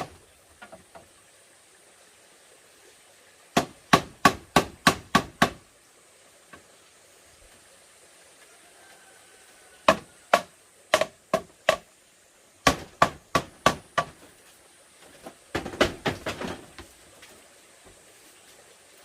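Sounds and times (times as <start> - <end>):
hammering on bamboo: 3.5 - 5.6, 9.8 - 11.9, 12.6 - 14.3, 15.5 - 16.8.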